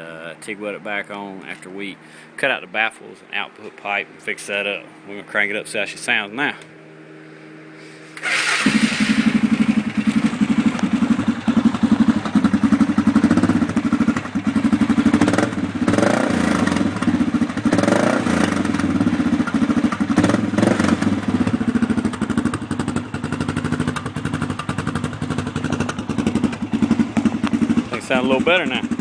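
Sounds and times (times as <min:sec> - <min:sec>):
atv engine revving: 0:06.9 - 0:29.0.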